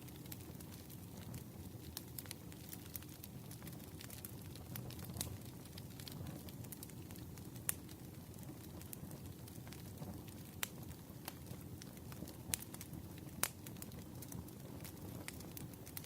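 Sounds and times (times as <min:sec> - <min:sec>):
campfire crackling: 0:00.0 - 0:16.0.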